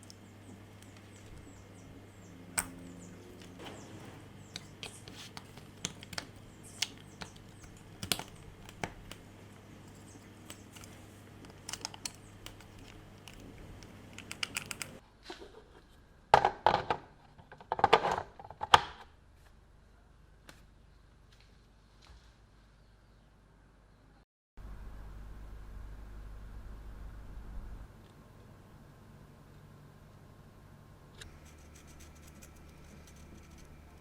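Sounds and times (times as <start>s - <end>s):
steady low hum: 0.0s - 16.3s, 19.2s - 34.0s
scraping knocks: 3.5s - 5.6s.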